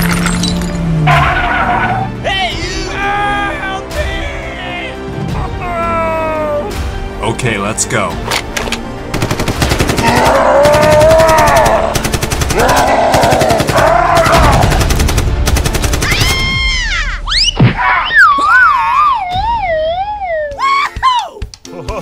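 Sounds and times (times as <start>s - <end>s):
machine-gun firing: 9.1s - 16.4s
rising and falling cries: 10.0s - 14.8s, 16.0s - 21.4s.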